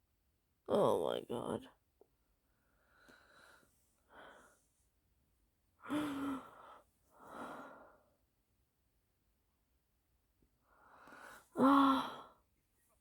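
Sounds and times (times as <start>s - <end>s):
person sighing and gasping: 5.8s - 6.6s, 11.6s - 12.4s.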